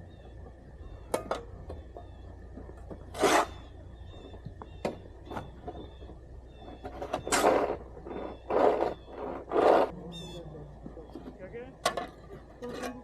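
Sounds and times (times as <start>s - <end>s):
low steady rumble: 0.0s - 13.0s
snow shovel scraping pavement: 3.0s - 3.7s, 6.8s - 9.9s.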